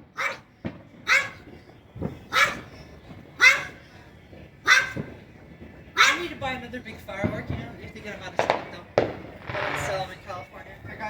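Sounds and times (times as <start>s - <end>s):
firework bangs: 0.0s - 11.0s
dog barking: 0.2s - 0.5s, 1.1s - 1.5s, 2.3s - 2.8s, 3.4s - 3.8s, 4.6s - 5.1s, 6.0s - 6.4s.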